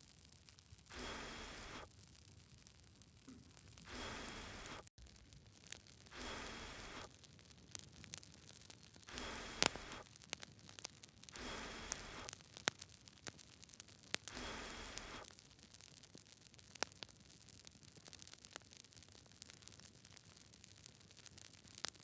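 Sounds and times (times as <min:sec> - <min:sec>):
campfire crackling and popping: 0:00.0 - 0:22.0
soft hissing: 0:00.9 - 0:01.9, 0:03.3 - 0:04.9, 0:06.1 - 0:07.1, 0:09.1 - 0:10.0, 0:11.4 - 0:12.3, 0:14.3 - 0:15.3.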